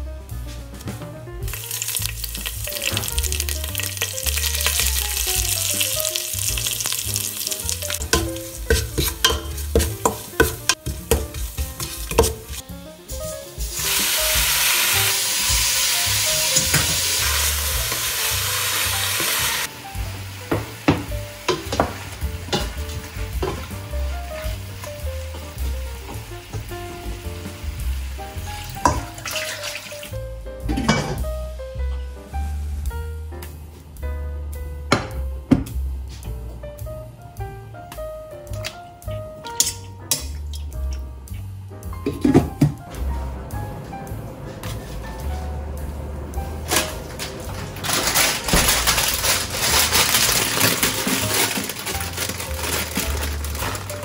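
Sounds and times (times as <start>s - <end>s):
background music with low beat: 0.0s - 29.2s, 30.1s - 54.0s
meat sizzling in hot oil: 1.4s - 30.2s, 47.8s - 54.0s.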